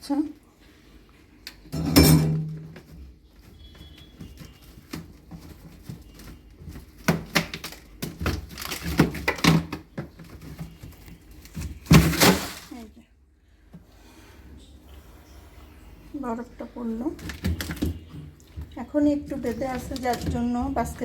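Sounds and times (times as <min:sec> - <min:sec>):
ice chunks knocking and falling: 0:03.5 - 0:12.9.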